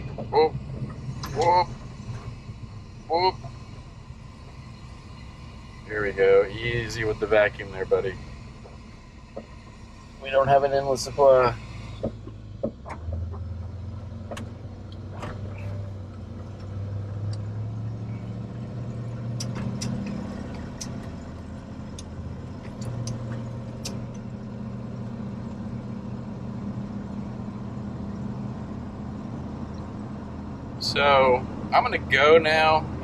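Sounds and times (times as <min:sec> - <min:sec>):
truck engine running: 0:00.0 - 0:33.0
sharp clicks and rattles: 0:19.0 - 0:26.4.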